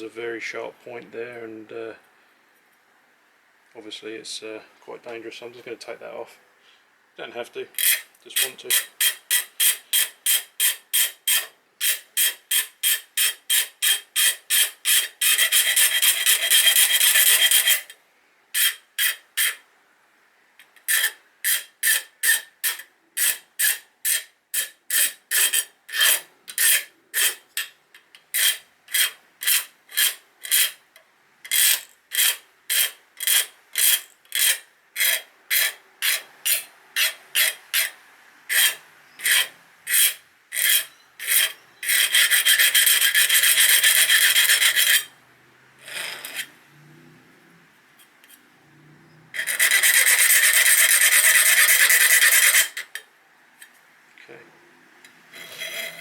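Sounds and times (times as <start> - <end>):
metal file rasping on steel: 7.8 - 18.0, 18.6 - 19.6, 20.9 - 27.8, 28.4 - 30.8, 31.5 - 45.1, 45.8 - 46.5, 49.4 - 53.0, 55.3 - 56.0.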